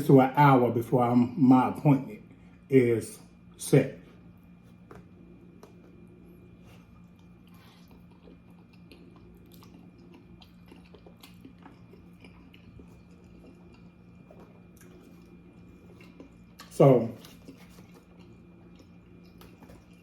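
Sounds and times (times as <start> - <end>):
low hum: 0.7 - 20.0
person chewing food: 4.2 - 20.0.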